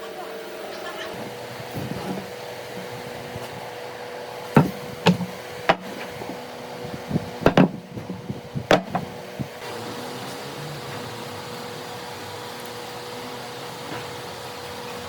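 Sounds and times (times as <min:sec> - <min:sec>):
tool knocking on wood: 0:04.6 - 0:06.4, 0:07.4 - 0:09.1.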